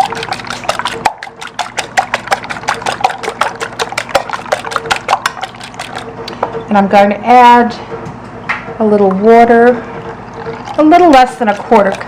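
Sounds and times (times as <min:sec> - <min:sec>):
wire whisk beating eggs: 0:00.0 - 0:06.2, 0:10.5 - 0:12.0.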